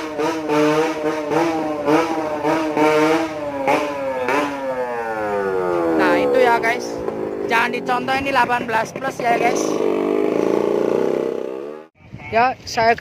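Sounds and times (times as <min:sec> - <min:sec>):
vehicle engine revving: 0:00.0 - 0:12.0.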